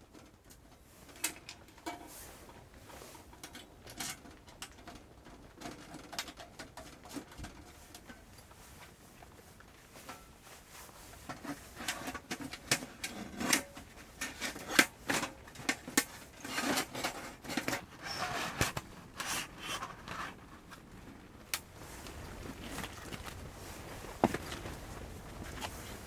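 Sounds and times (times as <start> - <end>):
rubbing and scraping: 6.8 - 26.0.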